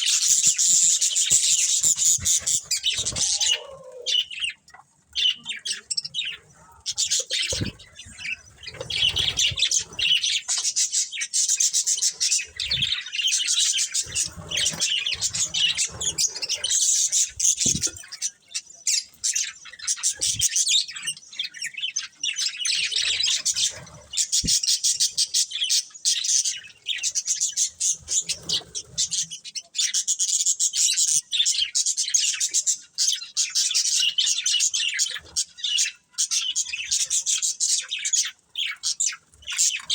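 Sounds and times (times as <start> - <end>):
budgerigars chattering and chirping: 0.0 - 39.9.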